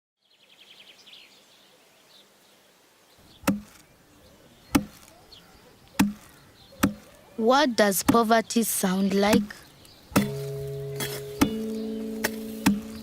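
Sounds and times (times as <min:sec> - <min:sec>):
faint high chirping: 0:03.2 - 0:13.0
sharp chopping knocks: 0:03.4 - 0:03.8, 0:04.7 - 0:05.1, 0:06.0 - 0:07.1, 0:08.0 - 0:08.3, 0:09.2 - 0:13.0.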